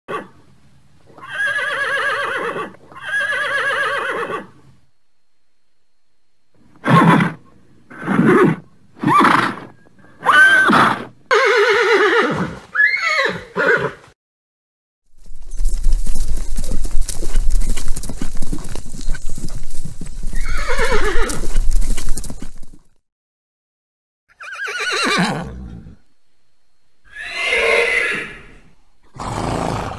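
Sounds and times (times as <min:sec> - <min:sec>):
horse whinnying: 0:01.2 - 0:04.5, 0:08.0 - 0:14.0, 0:20.3 - 0:22.6, 0:24.3 - 0:26.0, 0:27.1 - 0:29.9
low rumble: 0:15.1 - 0:20.4
horse hooves clip-clopping: 0:15.1 - 0:23.0.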